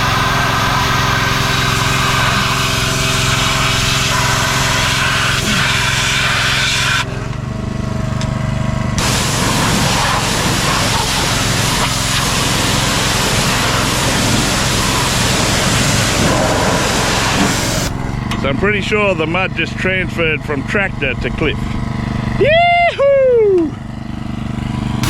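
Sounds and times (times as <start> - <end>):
high-pressure water jet hissing: 0.0 - 7.2, 9.0 - 18.0
small engine running: 0.0 - 25.0.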